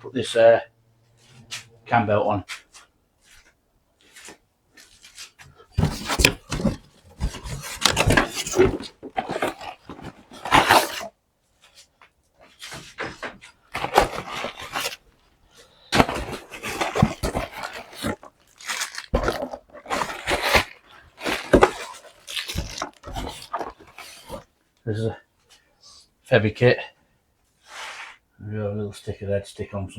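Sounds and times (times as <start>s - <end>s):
packaging rustling and scraping: 4.1s - 24.5s.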